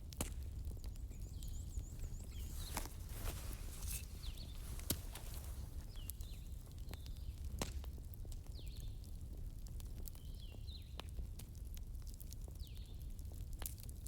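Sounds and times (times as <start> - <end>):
wood fire crackling: 1.2 - 7.4.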